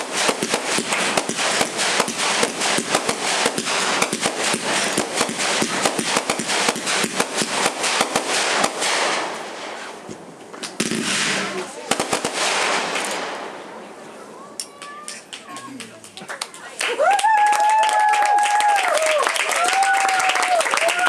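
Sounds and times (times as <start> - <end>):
fireworks popping and crackling: 0.0 - 13.6.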